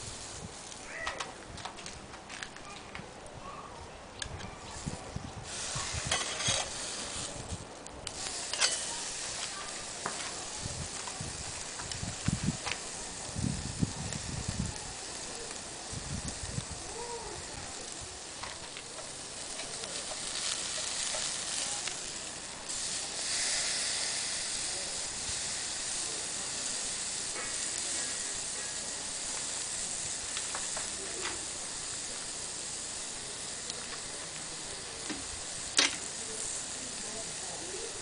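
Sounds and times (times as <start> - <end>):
steak sizzling over charcoal: 0.0 - 3.2, 4.2 - 38.0
sharp crack: 26.4 - 32.2, 33.6 - 36.4.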